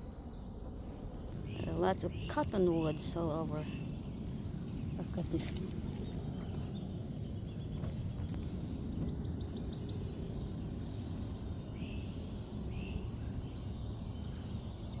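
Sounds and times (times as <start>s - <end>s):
birds singing: 1.2s - 15.0s.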